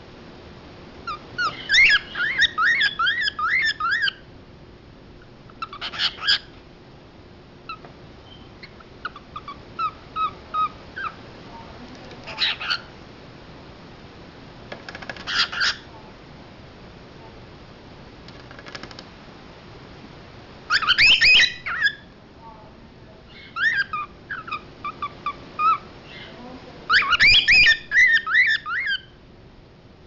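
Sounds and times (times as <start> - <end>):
cockatiel harsh call: 1.0 - 4.2, 5.6 - 6.5, 7.7 - 11.2, 12.3 - 12.9, 15.2 - 15.9, 20.7 - 22.1, 23.3 - 29.2
cockatiel whistling: 1.1 - 4.2, 20.7 - 22.0, 26.9 - 29.1.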